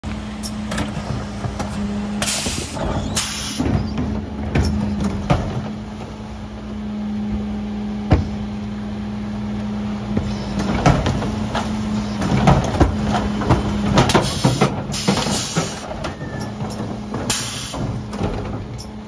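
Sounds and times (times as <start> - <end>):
truck engine humming: 0.0 - 19.0
sharp knocks and clunks: 8.0 - 8.4, 10.1 - 19.0.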